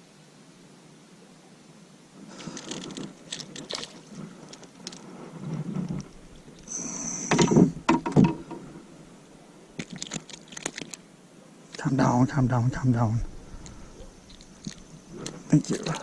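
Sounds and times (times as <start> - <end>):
fishing gear clicks and rustling: 2.3 - 6.7, 9.8 - 11.1, 13.6 - 16.0
knocks against a boat hull: 7.3 - 8.6.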